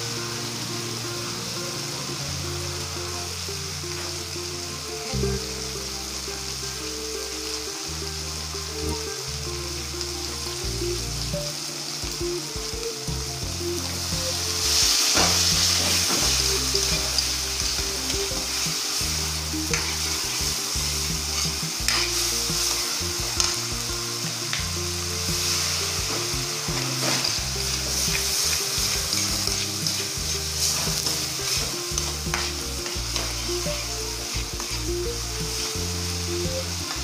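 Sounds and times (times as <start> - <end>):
vegetables sizzling in hot oil: 0.0 - 37.0
metal spatula scraping pan: 19.6 - 36.0.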